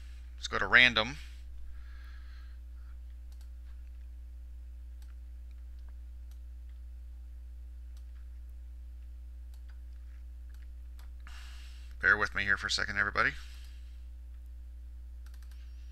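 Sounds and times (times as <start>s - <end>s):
low electrical hum: 0.0s - 15.9s
mouse and keyboard clicks: 15.2s - 15.7s.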